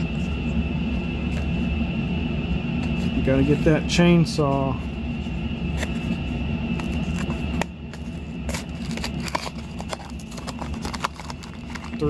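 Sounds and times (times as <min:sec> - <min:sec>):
low background hum: 0:00.0 - 0:12.0
cardboard packaging crackling: 0:08.0 - 0:12.0.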